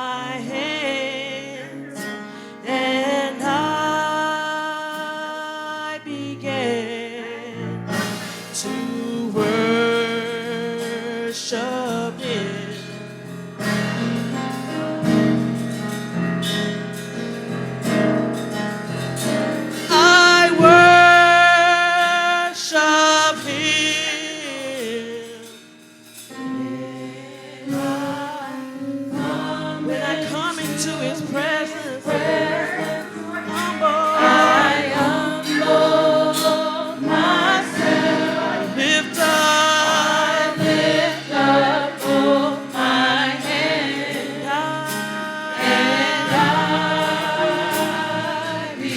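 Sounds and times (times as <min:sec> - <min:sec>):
choir singing gospel song: 0:00.0 - 0:48.9
instrumental accompaniment: 0:00.0 - 0:48.9.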